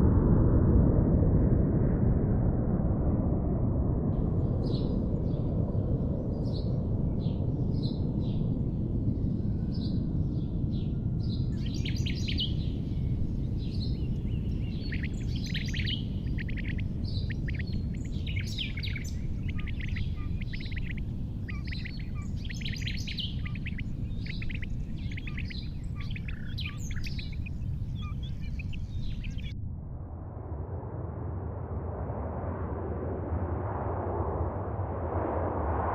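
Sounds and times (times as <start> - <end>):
steady low rumble: 0.0 - 35.9
small birds chirping: 9.7 - 29.5.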